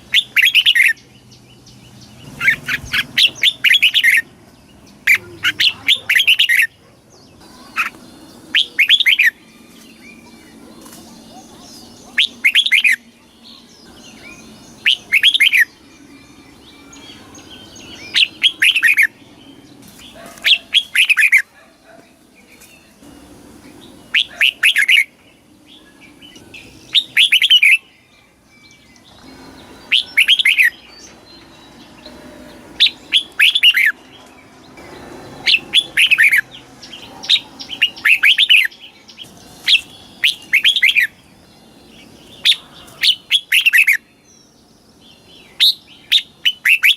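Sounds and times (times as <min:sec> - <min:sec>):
bird singing whistled phrases: 0:07.7 - 0:10.3, 0:11.3 - 0:19.2, 0:24.1 - 0:25.1, 0:25.9 - 0:31.1, 0:32.8 - 0:34.0, 0:37.3 - 0:38.8, 0:39.7 - 0:41.2, 0:42.4 - 0:44.1, 0:45.5 - 0:46.9.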